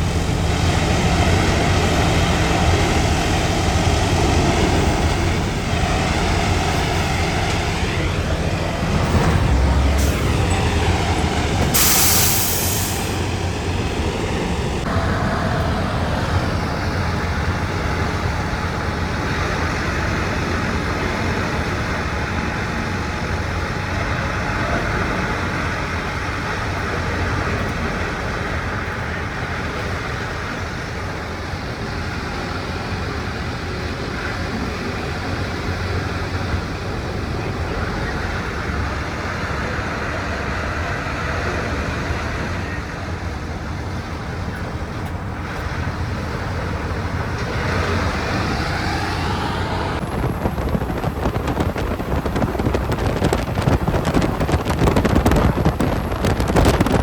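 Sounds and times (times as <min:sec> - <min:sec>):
truck diesel engine running: 0:00.0 - 0:57.0
air hiss: 0:11.7 - 0:13.7.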